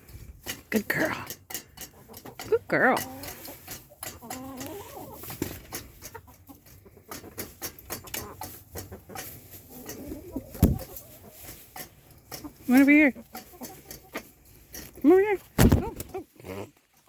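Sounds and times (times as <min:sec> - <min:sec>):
hens clucking softly: 0:01.5 - 0:15.0
rustling movement: 0:01.6 - 0:17.0
thump: 0:15.6 - 0:16.1.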